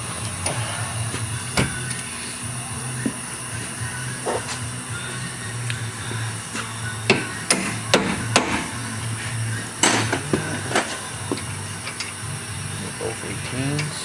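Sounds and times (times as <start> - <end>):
low hum: 0.0 - 14.0
hammer striking metal: 7.1 - 8.7.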